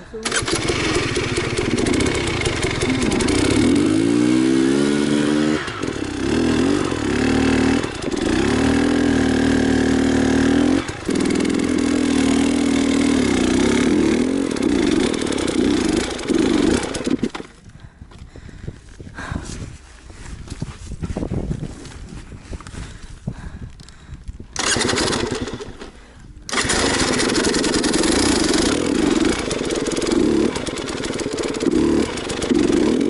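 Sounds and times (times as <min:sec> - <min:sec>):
motorcycle engine revving: 0:00.2 - 0:17.6, 0:24.6 - 0:33.0.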